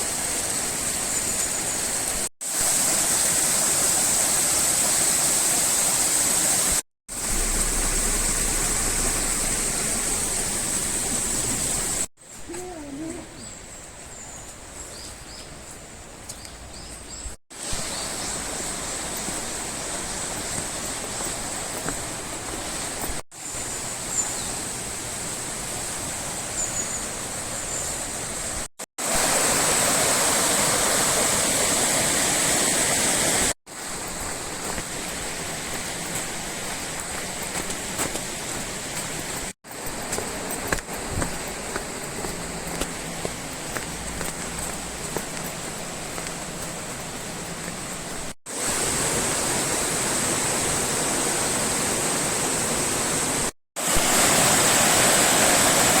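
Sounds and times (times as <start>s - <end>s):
river rushing: 0.0s - 12.1s, 28.5s - 56.0s.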